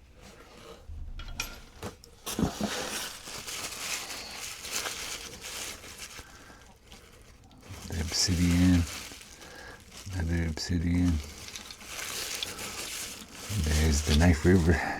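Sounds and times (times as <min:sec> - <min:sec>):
wrapping rustling: 0:00.0 - 0:14.9
stone pieces clinking together: 0:11.1 - 0:12.7.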